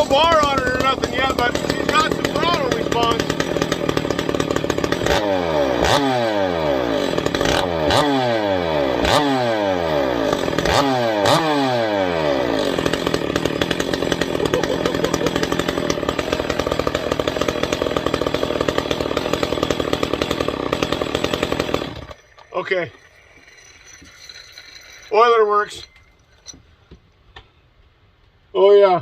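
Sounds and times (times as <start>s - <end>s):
chainsaw revving: 0.0s - 22.8s
chainsaw idling: 0.0s - 23.5s.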